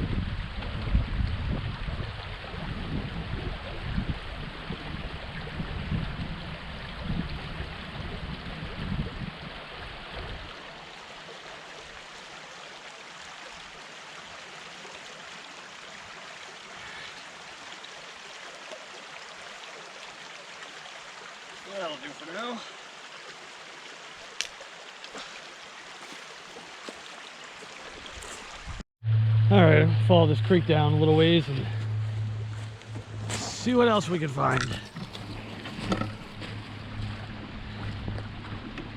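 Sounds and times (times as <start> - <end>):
wind rumble on microphone: 0.0 - 10.6, 34.6 - 38.9
creek water flowing over rocks: 0.1 - 28.8, 30.8 - 38.9.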